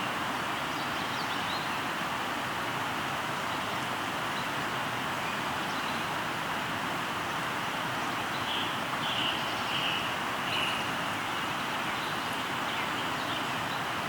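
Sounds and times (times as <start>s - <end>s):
river water rushing: 0.0s - 14.0s
bird singing: 8.4s - 13.8s.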